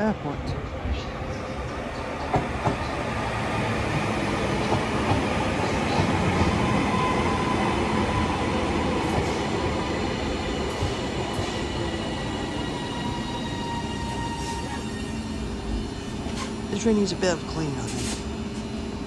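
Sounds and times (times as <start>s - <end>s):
train wheel and rail noise: 0.0s - 19.0s
clicks of train wheels: 2.2s - 3.0s, 4.6s - 6.6s, 10.6s - 11.7s.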